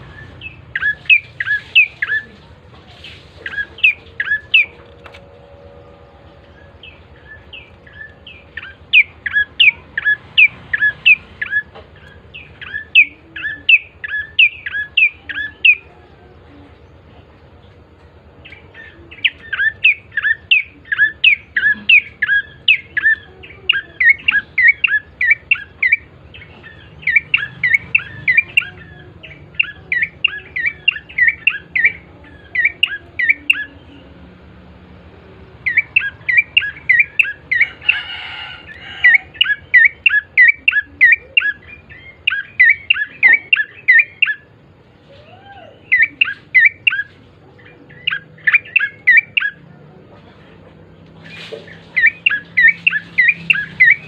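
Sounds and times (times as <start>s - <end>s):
bird chirping song: 0.0s - 54.0s
harsh scratchy bird call: 51.2s - 54.0s.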